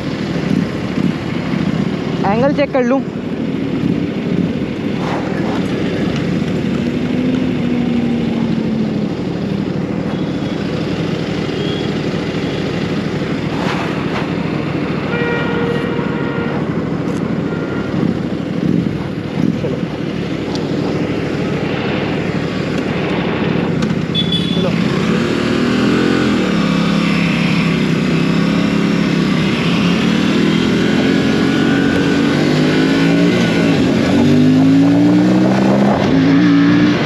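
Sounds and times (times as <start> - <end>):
wind rush: 0.0 - 9.1
motorcycle engine running: 0.0 - 37.0.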